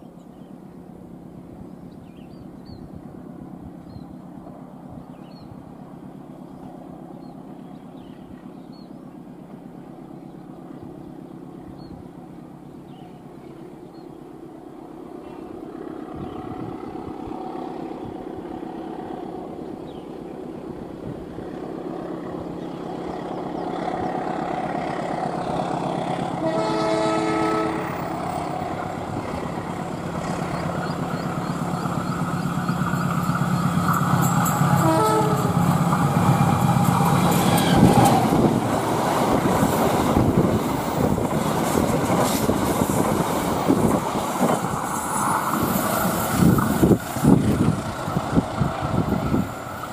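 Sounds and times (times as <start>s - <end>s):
diesel locomotive engine drone: 0.0s - 49.9s
train rushing rail noise: 0.0s - 49.9s
train horn: 26.2s - 28.3s, 34.4s - 35.8s.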